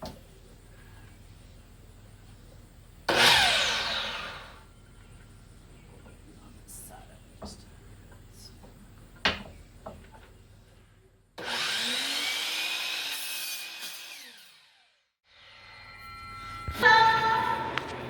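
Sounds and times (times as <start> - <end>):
power saw cutting wood: 3.1 - 4.6, 11.4 - 16.7.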